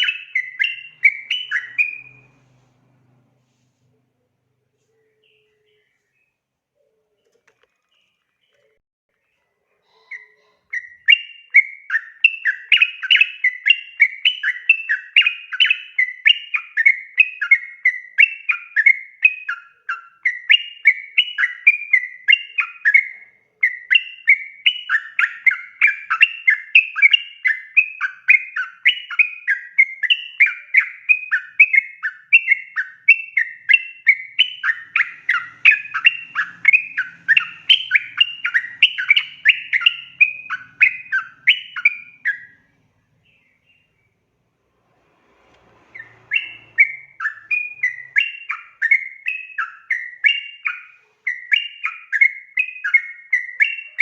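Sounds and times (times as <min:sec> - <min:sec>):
bird singing chattering notes: 0:00.0 - 0:02.4, 0:10.1 - 0:42.6, 0:45.9 - 0:54.0.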